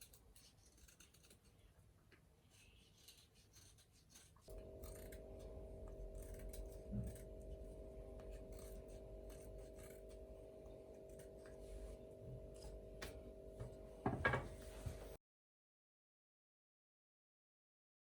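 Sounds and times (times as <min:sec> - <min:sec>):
light scratching and clicking: 0:00.0 - 0:11.9
steady hum: 0:04.5 - 0:15.2.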